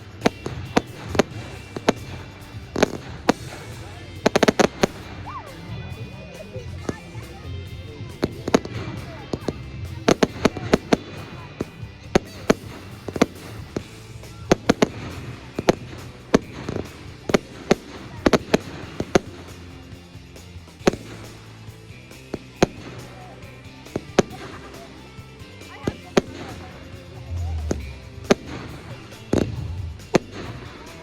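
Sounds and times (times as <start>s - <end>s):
fireworks bangs: 0.0s - 5.3s.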